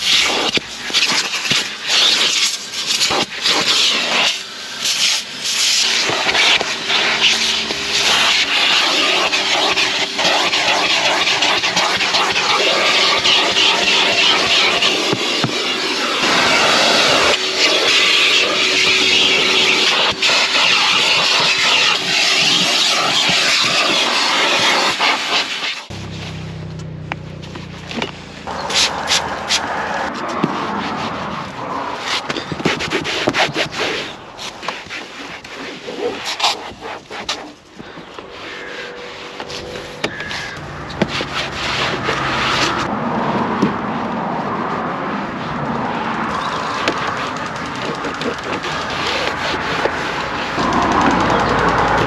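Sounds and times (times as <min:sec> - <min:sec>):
scrubbing a car surface: 0:00.0 - 0:26.6, 0:27.9 - 0:42.9, 0:45.3 - 0:51.9
low motor hum: 0:25.9 - 0:31.9, 0:46.5 - 0:52.0.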